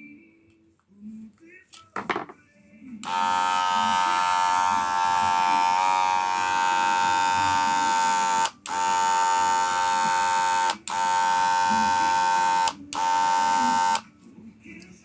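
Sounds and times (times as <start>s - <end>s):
hair clipper buzzing: 3.0s - 14.0s.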